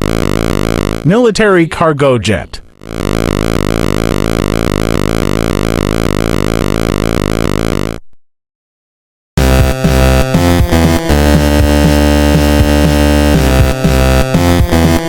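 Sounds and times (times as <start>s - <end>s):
electronic synthesizer drone: 0.0s - 1.1s, 2.7s - 8.0s, 9.4s - 15.0s
electronic dance music: 0.0s - 4.1s, 9.4s - 15.0s.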